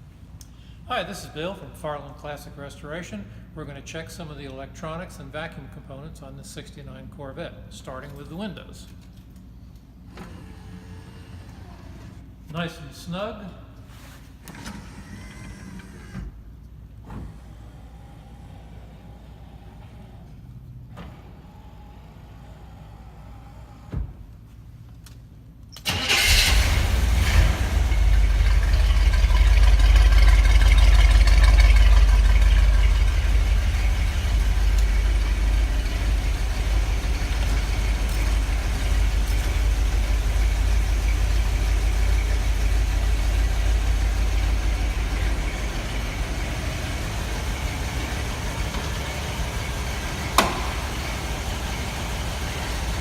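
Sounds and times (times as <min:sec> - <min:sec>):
car engine starting and idling: 0:10.0 - 0:12.4, 0:14.4 - 0:24.4, 0:25.8 - 0:53.0.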